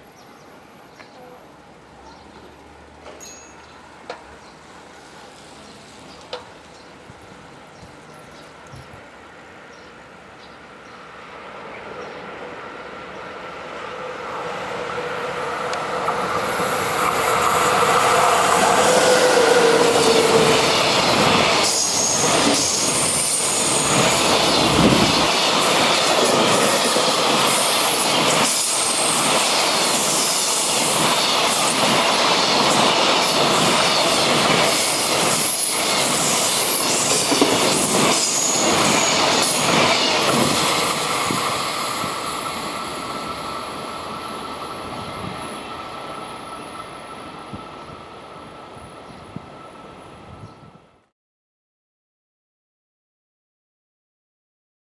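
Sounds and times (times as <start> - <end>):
train rumble and motor whine: 11.0 - 51.0
high wheel squeal: 17.6 - 25.3.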